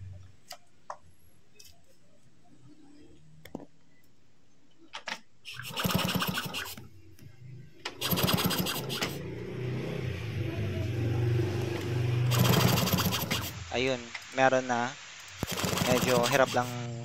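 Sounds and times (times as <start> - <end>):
engine being kick-started: 5.6 - 6.7, 7.9 - 9.3, 11.8 - 13.5
engine turning over clatter: 8.0 - 9.3, 11.6 - 13.5.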